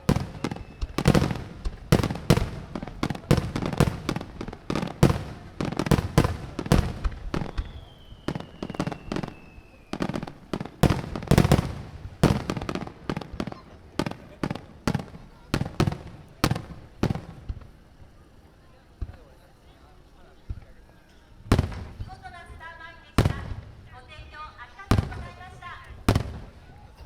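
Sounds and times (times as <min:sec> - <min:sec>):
fireworks booming and cracking: 0:00.0 - 0:18.2, 0:21.4 - 0:27.0
faint descending whistle: 0:07.4 - 0:10.0.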